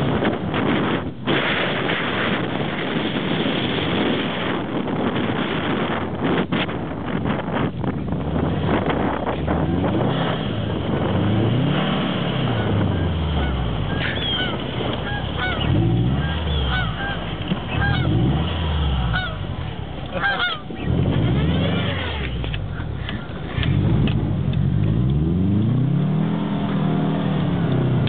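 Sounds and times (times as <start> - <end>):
car engine revving: 0.0 - 28.0
high chirps and squeaks: 13.9 - 18.0.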